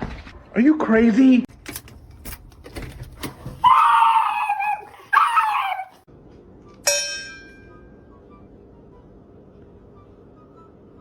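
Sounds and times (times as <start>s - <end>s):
animal screaming cries: 3.6s - 6.1s.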